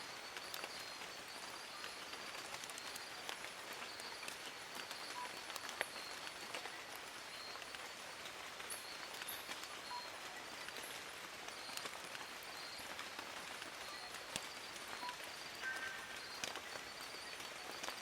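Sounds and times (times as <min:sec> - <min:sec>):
rain falling on leaves: 0:00.0 - 0:18.0
faint high chirps: 0:08.7 - 0:11.9, 0:13.6 - 0:18.0.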